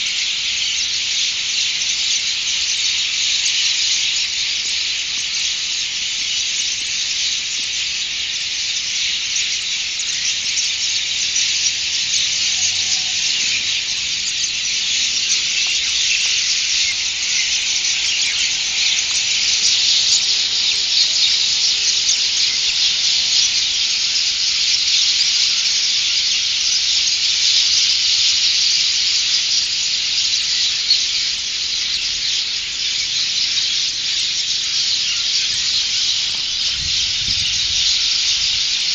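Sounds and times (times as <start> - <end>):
flock of birds chattering: 0.0 - 38.9.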